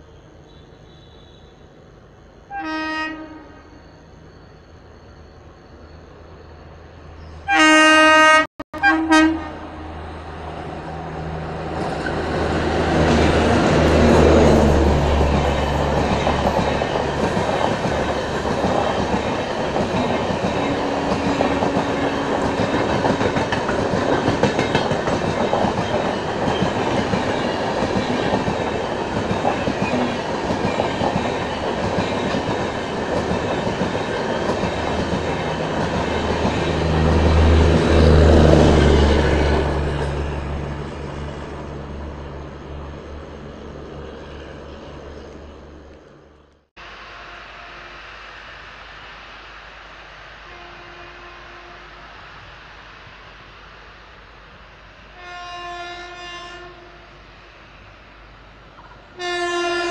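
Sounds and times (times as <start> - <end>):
locomotive horn blasts: 0.5 - 1.6, 2.5 - 3.8, 7.5 - 9.9, 50.5 - 52.0, 55.2 - 57.0, 59.2 - 59.9
train wheels clattering on rails: 11.6 - 40.6.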